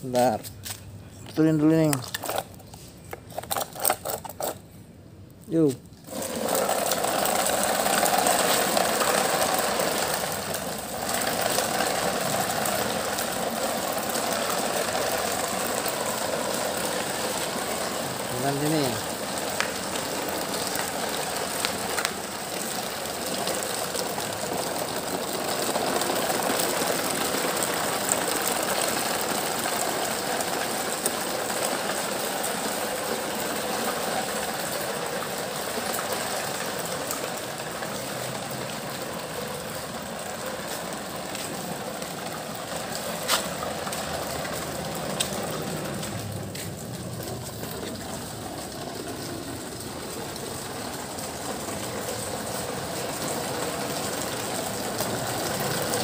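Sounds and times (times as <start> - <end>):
toy truck whirring rattle: 3.3 - 4.6, 6.0 - 22.2.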